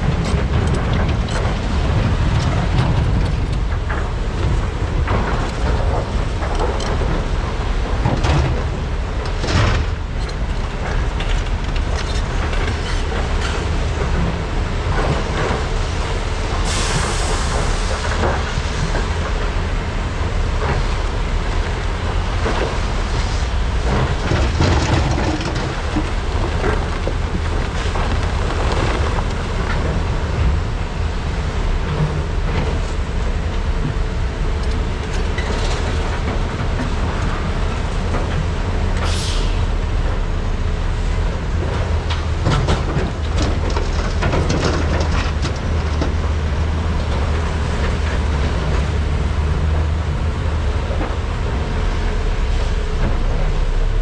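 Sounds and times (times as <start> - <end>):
knocks and clatter: 0.0 - 16.7, 17.9 - 39.1, 41.0 - 54.0
excavator diesel engines rumbling: 0.0 - 54.0
short hiss: 39.0 - 39.7.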